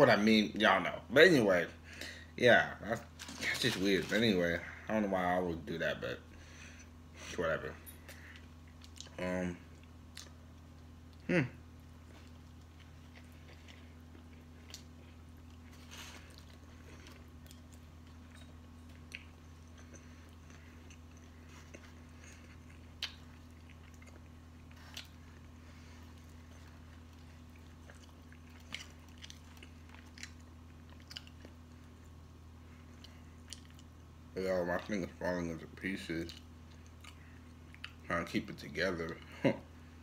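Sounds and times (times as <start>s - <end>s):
steady low hum: 0.0s - 40.0s
person chewing: 8.1s - 34.1s, 36.2s - 38.0s.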